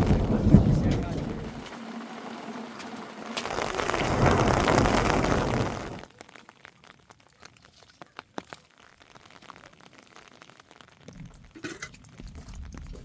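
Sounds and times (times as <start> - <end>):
thunder rumble: 0.0 - 6.1
raindrops dripping: 0.0 - 13.0.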